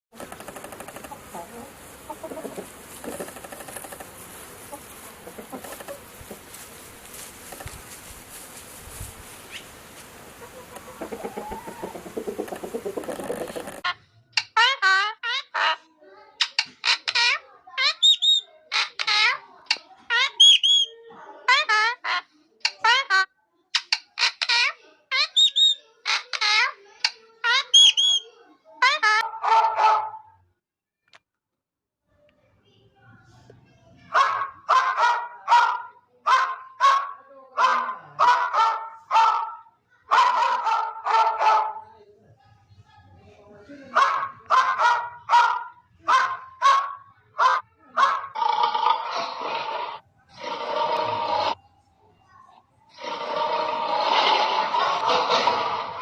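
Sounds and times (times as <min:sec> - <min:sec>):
chickens clucking: 0:00.2 - 0:13.9
high-pitched animal calls: 0:10.4 - 0:15.8, 0:16.5 - 0:19.4, 0:20.1 - 0:20.9, 0:24.1 - 0:26.8, 0:27.4 - 0:29.4
high chirps: 0:17.8 - 0:18.9, 0:20.2 - 0:20.9, 0:25.2 - 0:25.8, 0:27.6 - 0:28.3.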